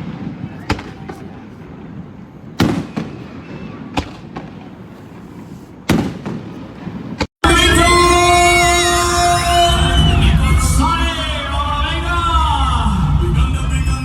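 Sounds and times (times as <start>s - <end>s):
fireworks popping: 0.0s - 7.3s
fireworks bangs: 0.0s - 14.0s
music with singing: 7.4s - 14.0s.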